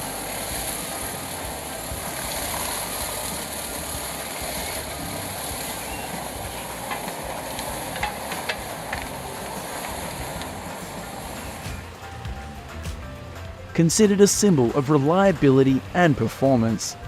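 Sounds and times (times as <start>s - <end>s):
wood chipper hissing: 0.0s - 14.7s
sharp clicks and knocks: 6.8s - 11.0s.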